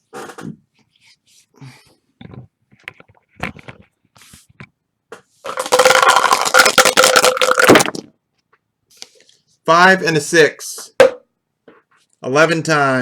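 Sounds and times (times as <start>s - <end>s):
dice rattling in container: 5.5s - 8.1s.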